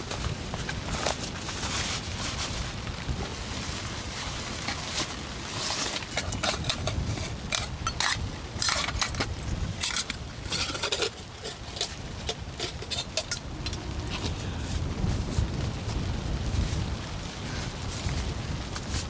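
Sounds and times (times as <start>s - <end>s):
steady background hiss: 0.0s - 19.0s
metal cookware clattering: 6.0s - 9.2s, 9.8s - 14.2s.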